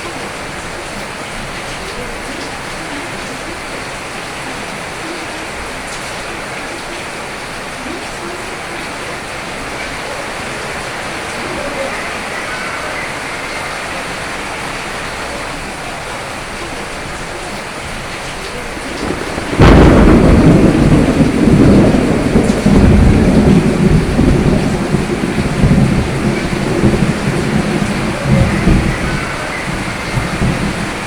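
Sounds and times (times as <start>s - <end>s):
heavy rain: 0.0s - 31.0s
thunderclap and rolling thunder: 7.8s - 31.0s.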